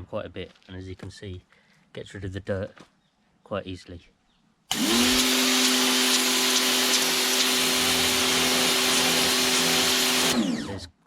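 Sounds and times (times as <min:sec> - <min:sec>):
pressure washer motor humming: 0:04.7 - 0:10.9.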